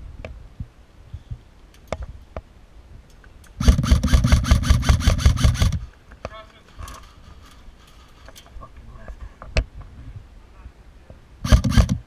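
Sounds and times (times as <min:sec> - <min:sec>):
airsoft gun full-auto burst: 0:03.6 - 0:05.9, 0:11.4 - 0:12.0.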